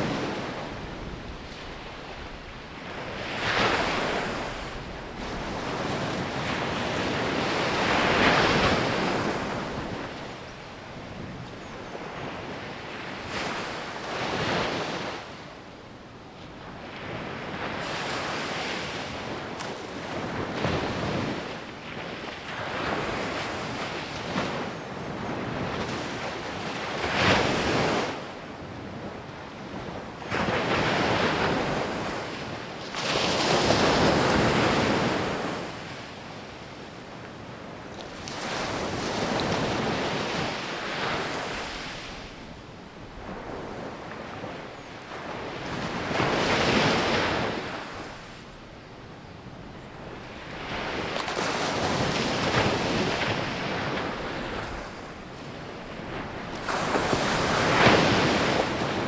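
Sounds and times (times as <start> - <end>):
sea waves breaking: 50.4 - 59.0.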